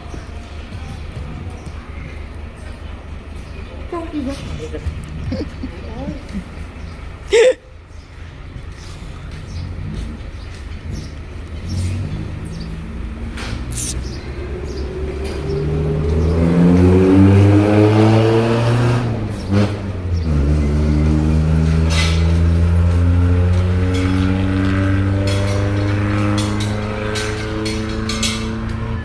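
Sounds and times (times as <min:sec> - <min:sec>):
vehicle engine revving: 0:08.6 - 0:29.0.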